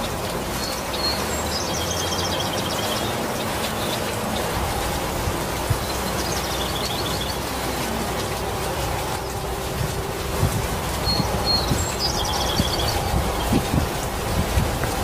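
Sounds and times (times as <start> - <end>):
heavy rain on leaves: 0.0 - 15.0
bird chirping: 0.6 - 4.1, 5.8 - 7.5.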